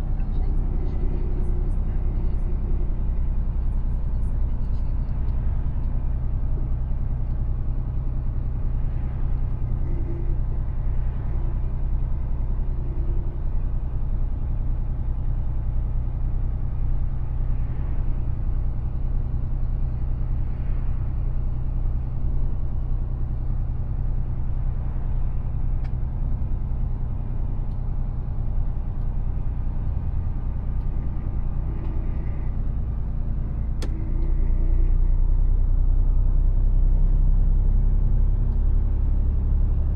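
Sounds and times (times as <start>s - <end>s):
truck engine and road rumble: 0.0s - 39.9s.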